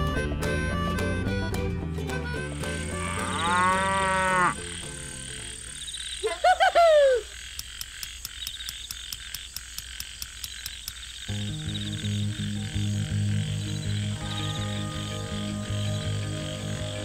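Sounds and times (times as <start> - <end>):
background music: 0.0 - 5.9, 11.3 - 17.0
regular high ticking: 1.4 - 17.0
cow mooing: 2.8 - 4.7
faint steady chirping: 4.5 - 17.0.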